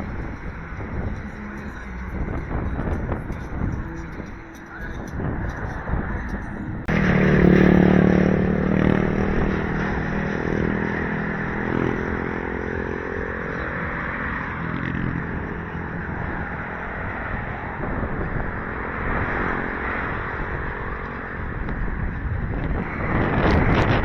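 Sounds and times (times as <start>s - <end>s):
traffic rush: 0.0s - 24.0s
vehicle engine running: 0.0s - 24.0s
wind: 0.0s - 24.0s.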